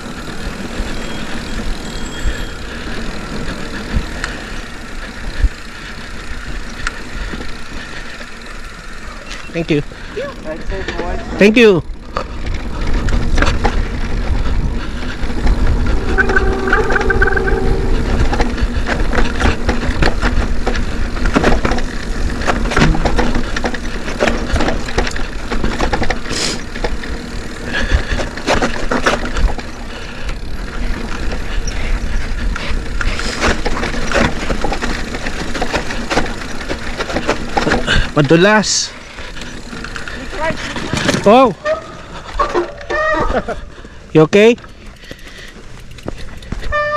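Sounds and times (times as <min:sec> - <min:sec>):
bike knocking and rattling: 0:00.0 - 0:16.2, 0:17.9 - 0:46.9
bike rumbling on dirt trail: 0:00.0 - 0:46.9
brief squeal: 0:15.6 - 0:18.8.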